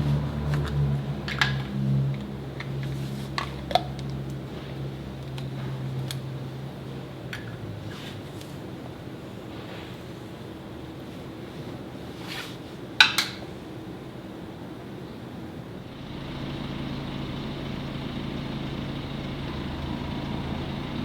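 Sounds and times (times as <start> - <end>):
car engine humming and idling: 0.0 - 7.9, 15.9 - 21.0.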